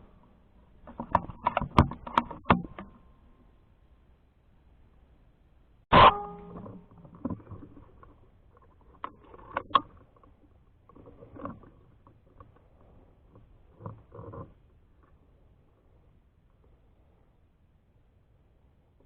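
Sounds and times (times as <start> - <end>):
light clicks and knocks: 0.8 - 3.0
air rifle shot with ringing: 5.9 - 6.6.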